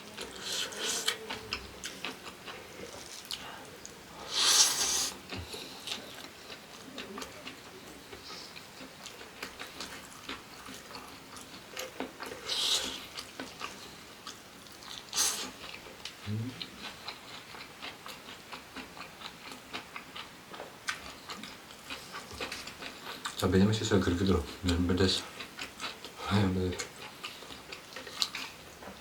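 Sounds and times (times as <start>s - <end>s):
wet crunching chewing: 26.8s - 28.6s.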